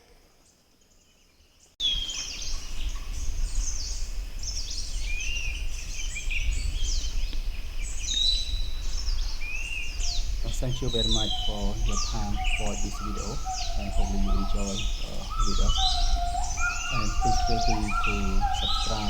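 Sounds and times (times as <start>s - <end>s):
forest birds chirping: 0.0s - 19.0s
high level bird whistle: 8.0s - 19.0s
bird whistle: 10.0s - 19.0s.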